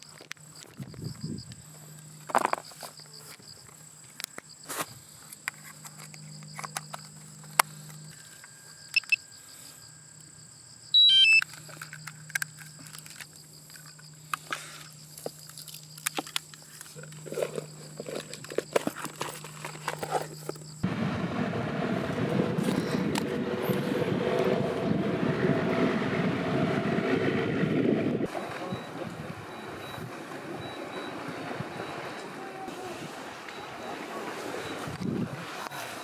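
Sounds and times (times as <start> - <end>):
insects trilling: 0.0 - 20.9, 28.3 - 36.0
falling high notes: 11.0 - 11.4.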